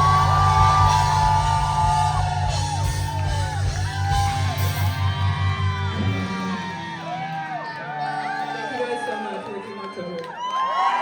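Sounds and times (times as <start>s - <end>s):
live rock band playing loudly: 0.0s - 7.5s
pulsing bass: 0.0s - 7.7s
audience whooping and yelling: 0.0s - 11.0s.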